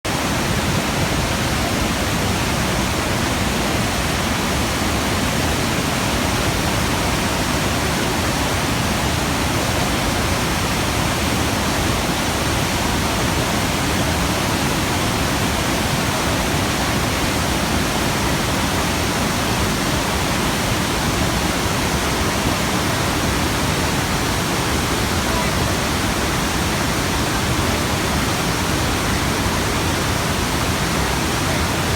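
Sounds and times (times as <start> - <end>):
waterfall rushing: 0.1 - 31.9.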